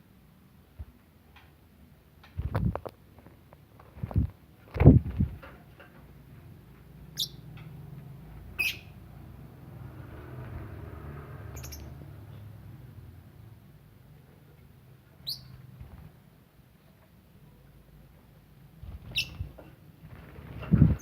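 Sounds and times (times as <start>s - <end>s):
lovebirds chirping: 7.1s - 7.6s, 8.6s - 9.0s, 11.5s - 12.5s, 15.2s - 15.7s, 18.9s - 19.6s.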